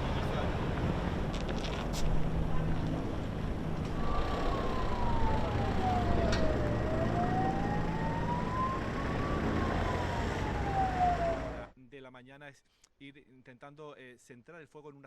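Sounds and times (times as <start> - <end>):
engine and traffic rumble: 0.0 - 11.8
siren wailing: 2.4 - 11.7.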